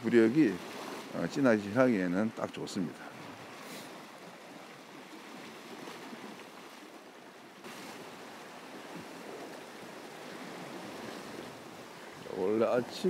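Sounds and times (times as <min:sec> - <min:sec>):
sea water lapping against shore: 0:00.0 - 0:13.0.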